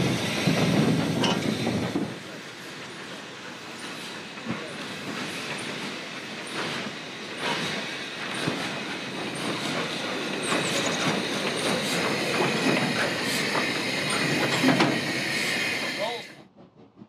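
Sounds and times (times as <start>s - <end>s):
wheels clattering over rail joints: 3.8s - 15.3s
high wheel squeal: 9.5s - 16.2s.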